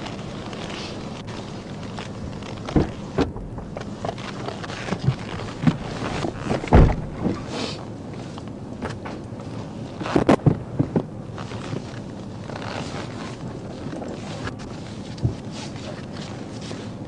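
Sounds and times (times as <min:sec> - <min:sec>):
knocks and thumps: 0:02.6 - 0:04.3, 0:04.9 - 0:07.5, 0:10.2 - 0:11.2.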